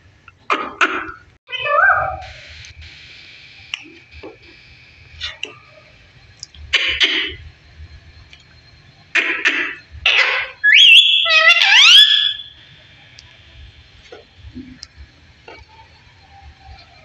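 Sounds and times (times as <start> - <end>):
parrot squawking: 0.7 - 2.2, 9.2 - 12.5
parrot whistling: 9.2 - 12.6.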